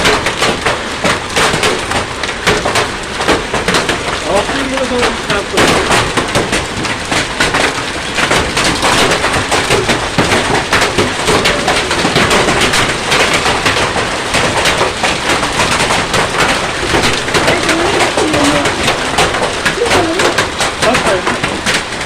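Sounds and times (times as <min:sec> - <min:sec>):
hail and rain pelting down: 0:00.0 - 0:22.0.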